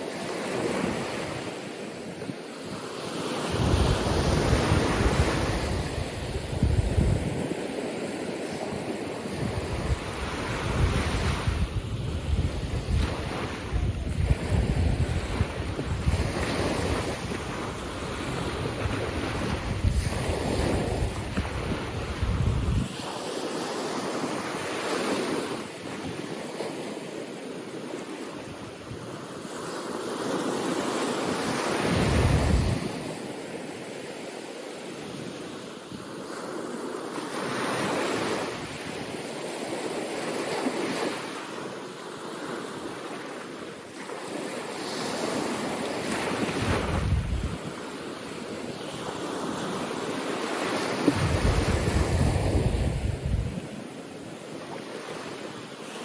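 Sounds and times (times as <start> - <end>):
ocean waves on beach: 0.0 - 56.0
wind buffeting microphone: 3.4 - 23.0, 31.6 - 33.1, 45.3 - 49.8, 50.6 - 53.9.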